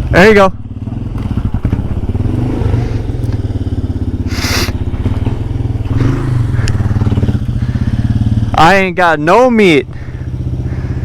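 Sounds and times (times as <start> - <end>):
motorcycle engine chugging: 0.0 - 11.0
short hiss or scrape: 4.3 - 4.8.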